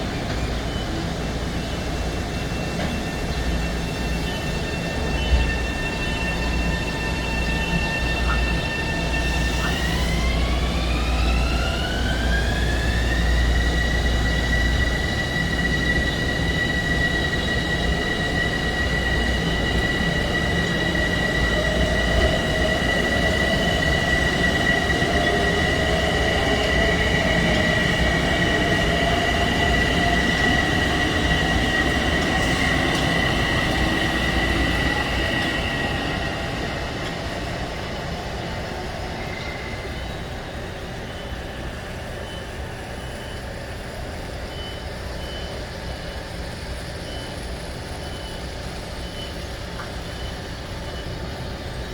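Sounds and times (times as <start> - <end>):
train wheels rumbling on rails: 0.0 - 51.9
electric train motor whine: 0.1 - 38.2.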